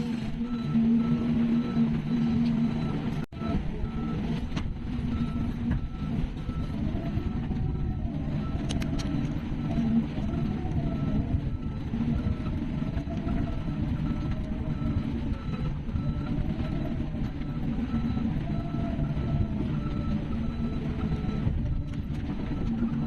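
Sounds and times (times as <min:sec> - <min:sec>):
heavy construction machine running: 0:00.0 - 0:23.0
rising and falling whine: 0:00.0 - 0:23.0.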